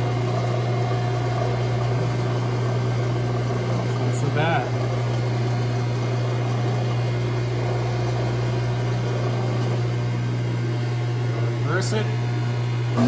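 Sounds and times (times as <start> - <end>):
milling machine humming: 0.0 - 13.0.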